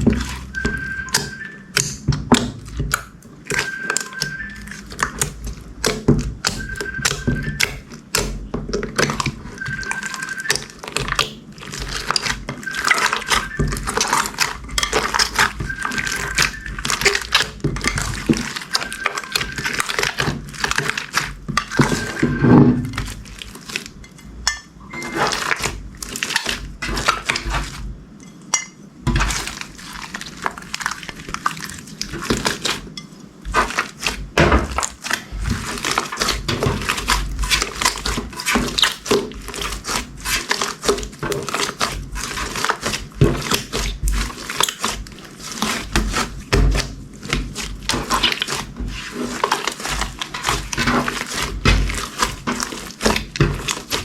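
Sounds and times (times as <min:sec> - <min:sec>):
slime squished by hand: 0:29.1 - 0:54.0.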